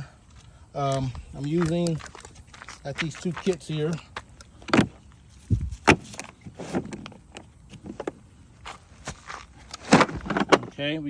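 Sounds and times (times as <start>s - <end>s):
tool cases knocking and thumping: 4.6s - 8.3s, 9.7s - 10.8s.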